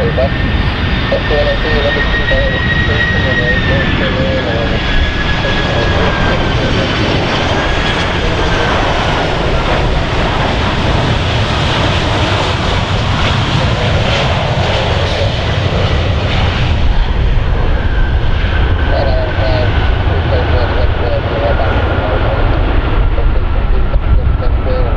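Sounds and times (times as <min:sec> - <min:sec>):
faint high whine: 0:00.0 - 0:10.8
jet engines roaring: 0:00.0 - 0:24.9.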